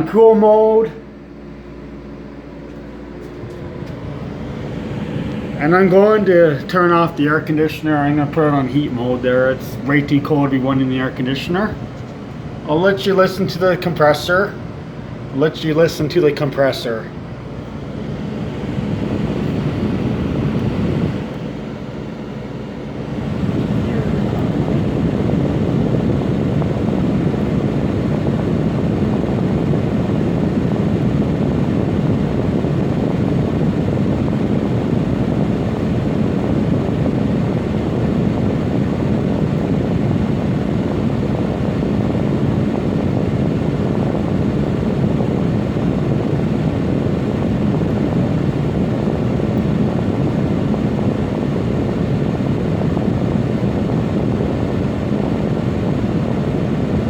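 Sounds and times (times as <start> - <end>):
air conditioner low hum: 0.0 - 57.0.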